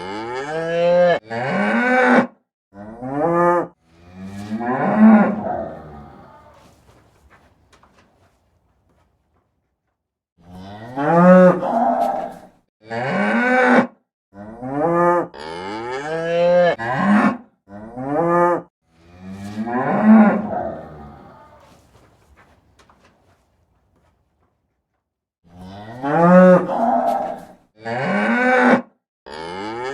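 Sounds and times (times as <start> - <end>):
cattle mooing: 0.0 - 6.8, 10.4 - 21.9, 25.5 - 29.9.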